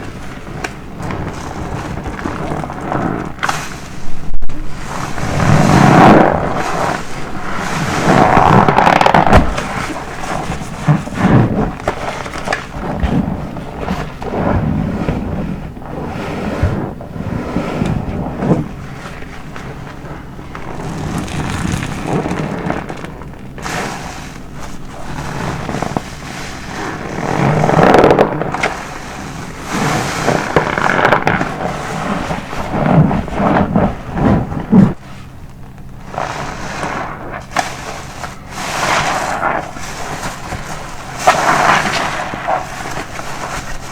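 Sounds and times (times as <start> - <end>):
soapy sponge squelching: 0.0 - 43.9.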